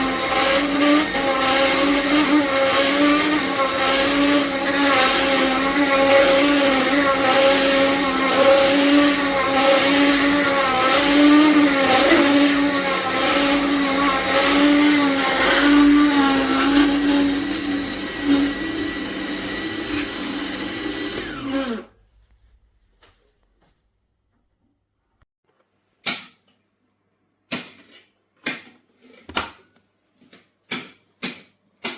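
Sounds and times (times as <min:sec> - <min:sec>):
juicer motor pulsing whine: 0:00.0 - 0:21.9.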